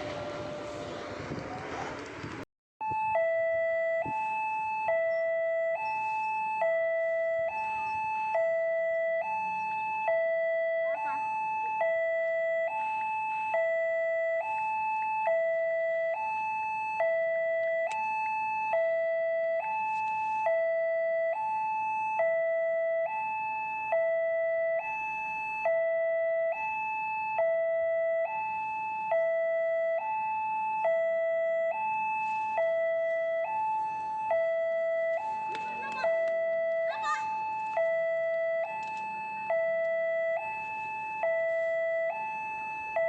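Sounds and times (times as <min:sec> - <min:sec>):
level-crossing two-tone warning alarm: 0:00.0 - 0:01.3, 0:02.8 - 0:43.0.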